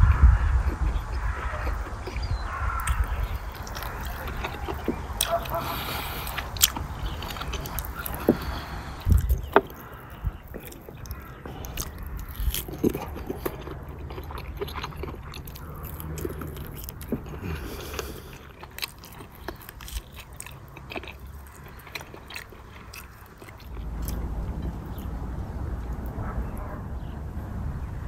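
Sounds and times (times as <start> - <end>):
man chewing meat: 0.4 - 26.8
low steady rumble: 22.6 - 28.0.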